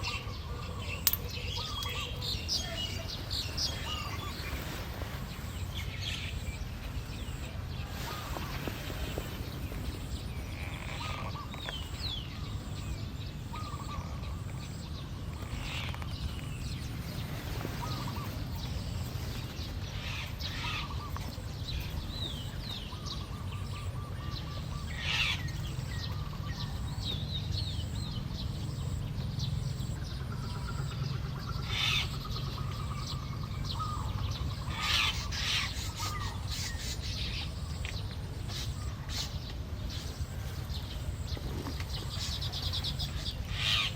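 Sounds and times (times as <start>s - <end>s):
birds chirping and chattering: 0.0s - 43.9s.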